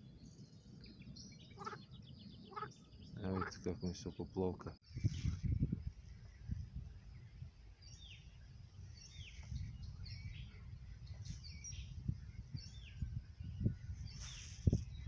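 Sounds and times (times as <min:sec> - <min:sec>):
steady low rumble: 0:04.9 - 0:14.2.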